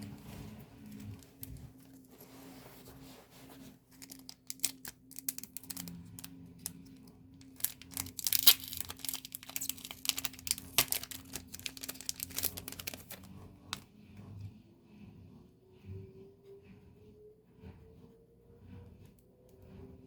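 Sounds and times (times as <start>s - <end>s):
packaging crinkling and tearing: 3.9s - 13.8s.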